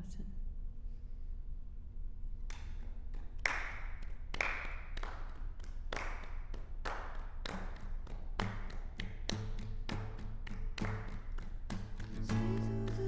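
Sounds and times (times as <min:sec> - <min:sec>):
low guitar notes: 0:12.0 - 0:13.0.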